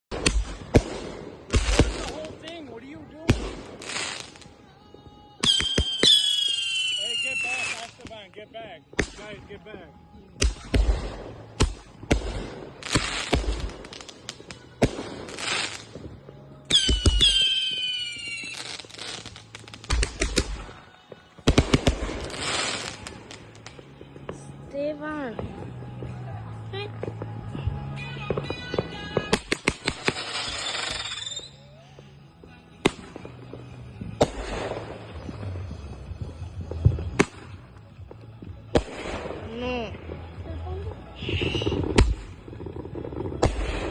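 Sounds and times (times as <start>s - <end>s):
firework bangs: 0.1s - 2.6s, 3.2s - 4.6s, 5.3s - 8.2s, 10.4s - 24.4s, 28.2s - 31.5s, 32.8s - 37.8s, 38.6s - 40.2s, 41.1s - 43.9s
firework crackling: 0.1s - 26.2s, 26.9s - 31.6s, 32.2s - 43.9s
firework whistles: 5.4s - 8.2s, 16.7s - 20.7s, 21.8s - 23.5s, 29.2s - 31.9s, 41.1s - 43.9s.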